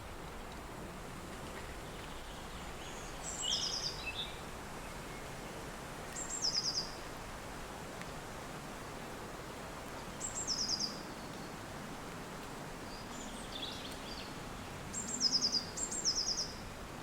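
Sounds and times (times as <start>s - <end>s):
songbird singing trills: 2.2s - 4.4s, 6.2s - 7.0s, 10.2s - 11.5s, 12.9s - 16.6s.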